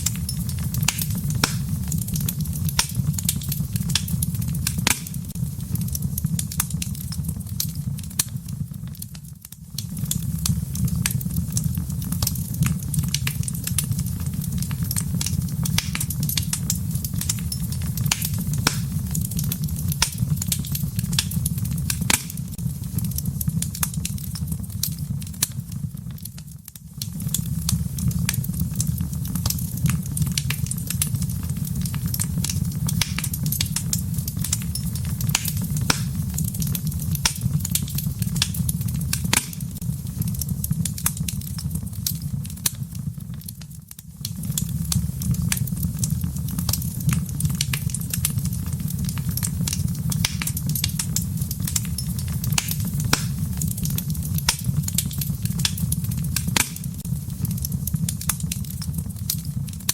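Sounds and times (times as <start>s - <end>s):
sharp pops and snaps: 0.0s - 45.8s, 46.5s - 59.9s
low rumble of flames: 0.0s - 59.9s
wood fire crackling: 0.0s - 59.9s.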